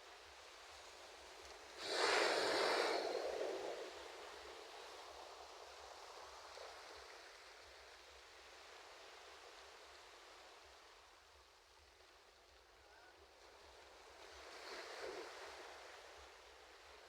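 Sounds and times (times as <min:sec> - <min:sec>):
soft surf hiss: 0:00.0 - 0:17.0
ocean wave breaking: 0:01.8 - 0:04.3.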